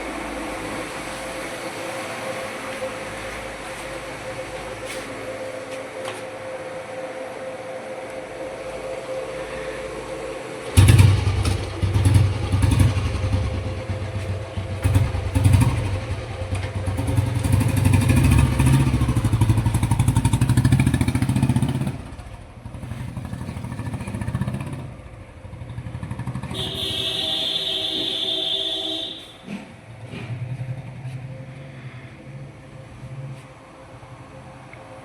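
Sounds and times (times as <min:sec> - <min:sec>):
motorcycle engine revving and idling: 0:10.8 - 0:27.8.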